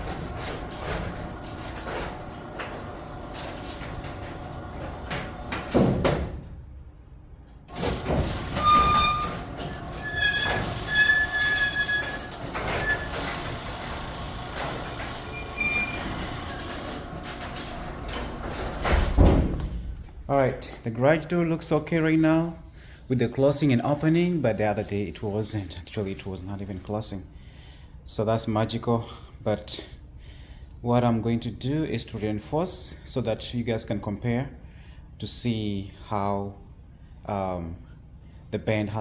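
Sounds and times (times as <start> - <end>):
garage door squealing: 0.0 - 6.5, 7.7 - 19.6
garage door rumbling on tracks: 0.0 - 6.7, 7.4 - 20.3.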